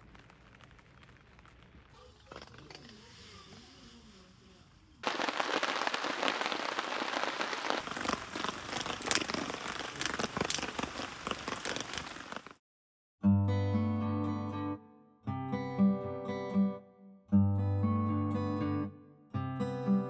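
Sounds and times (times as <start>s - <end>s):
rain falling: 0.0s - 3.5s, 5.0s - 12.6s
acoustic guitar music: 13.3s - 20.0s.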